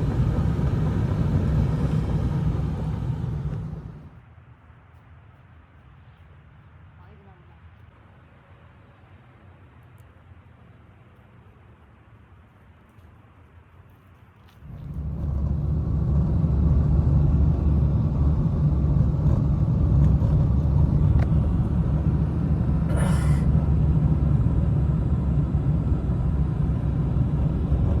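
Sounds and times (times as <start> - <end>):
wind buffeting microphone: 0.0 - 4.1, 14.6 - 28.0.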